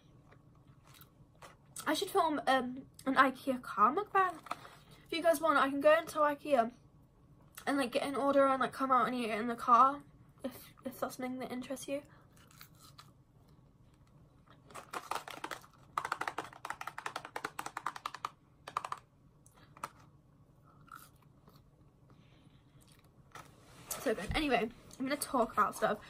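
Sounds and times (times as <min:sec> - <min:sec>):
soft crunching of chewing: 0:00.1 - 0:01.8, 0:12.1 - 0:14.7, 0:19.4 - 0:23.6.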